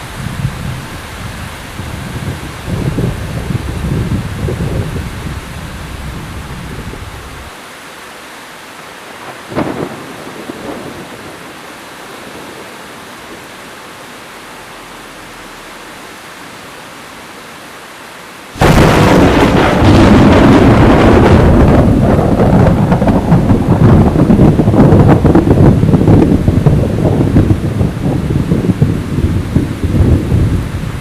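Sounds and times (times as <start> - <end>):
rain hissing: 0.0 - 31.0
rumbling crackling thunder: 0.2 - 7.5, 9.2 - 11.5, 18.6 - 31.0.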